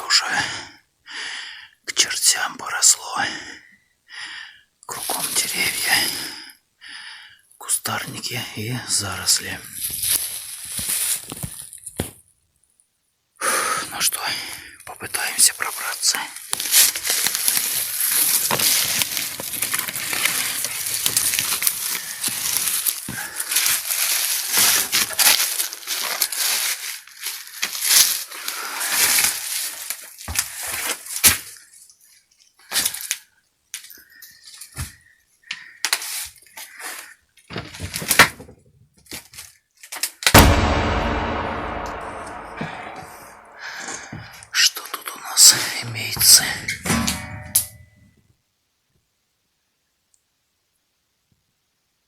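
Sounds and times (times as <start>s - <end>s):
loud ringing bang: 40.4s - 44.0s.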